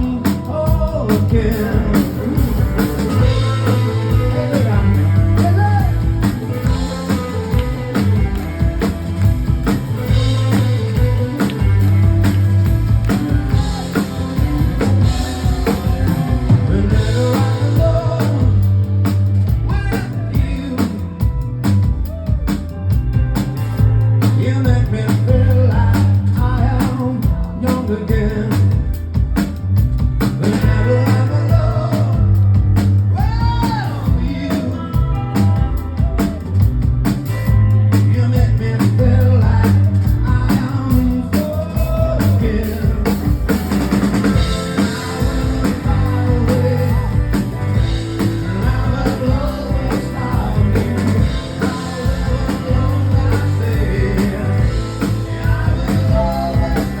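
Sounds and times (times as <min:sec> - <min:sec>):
person singing: 0:00.0 - 0:23.0, 0:30.4 - 0:32.6, 0:38.0 - 0:57.0
drum kit beat: 0:00.0 - 0:57.0
live rock band playing: 0:00.0 - 0:57.0.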